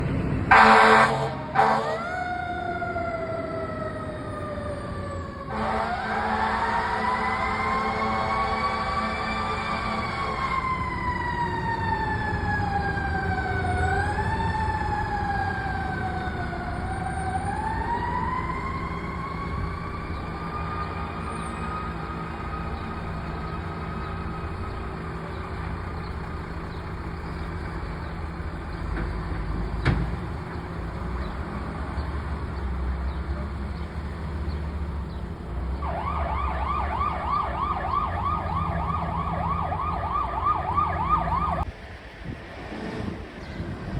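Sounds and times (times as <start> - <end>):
heavy engine rumble: 0.0 - 43.9
fire truck siren wailing: 0.4 - 28.7, 34.8 - 41.7
siren fast yelp: 35.8 - 41.7.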